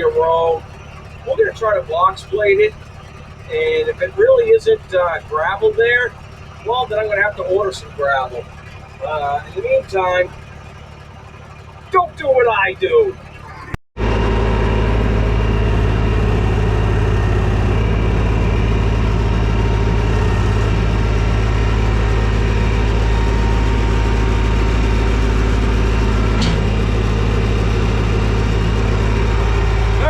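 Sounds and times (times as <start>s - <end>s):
tractor diesel engine running: 0.0s - 30.0s
short click: 26.4s - 26.6s.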